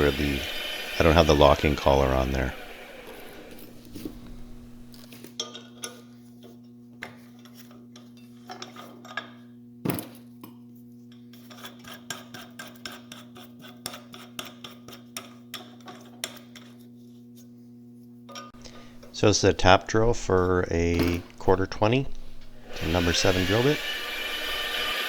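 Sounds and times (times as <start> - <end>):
steady low hum: 0.0 - 5.0, 18.6 - 24.9.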